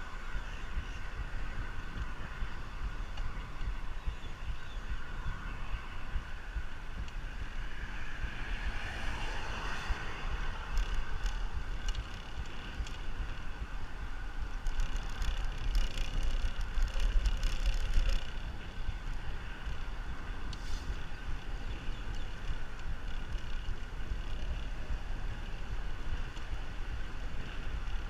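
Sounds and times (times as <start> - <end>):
road noise: 0.0 - 28.0
wind buffeting microphone: 0.0 - 28.0
light clicks and rattles: 14.4 - 19.8.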